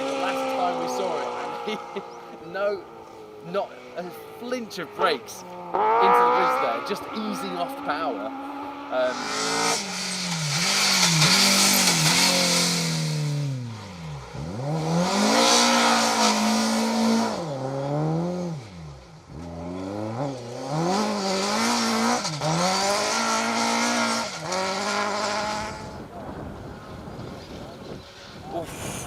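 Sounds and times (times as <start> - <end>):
rally car engines at high revs: 0.0 - 29.0
tyres hissing on road: 28.4 - 29.0.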